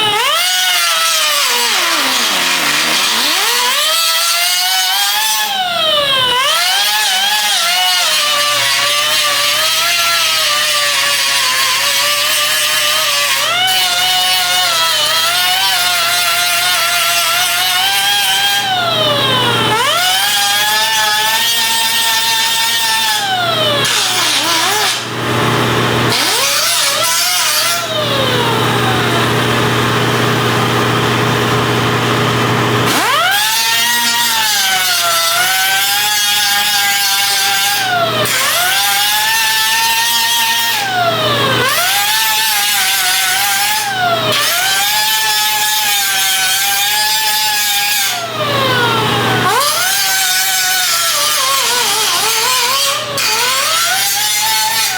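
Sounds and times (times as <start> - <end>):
harsh grinding noise: 0.0 - 54.9
power tool motor whining: 0.0 - 54.9.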